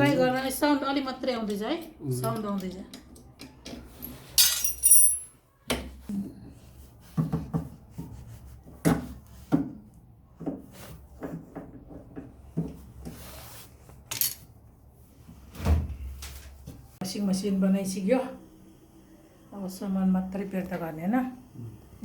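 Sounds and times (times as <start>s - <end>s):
tools knocking and scraping: 10.4s - 13.2s.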